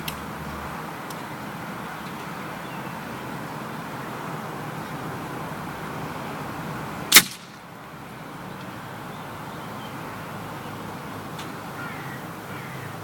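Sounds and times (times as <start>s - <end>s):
steady background noise: 0.0s - 13.0s
air rifle shot: 7.1s - 7.6s.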